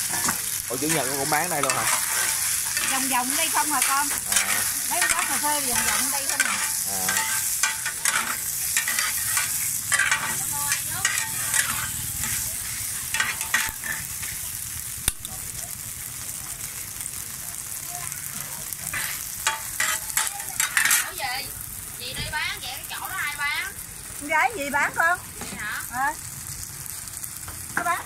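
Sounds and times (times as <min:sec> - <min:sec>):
metal spatulas scraping griddle: 0:00.0 - 0:14.4, 0:18.8 - 0:21.2
cake pieces sizzling in oil: 0:00.0 - 0:28.0.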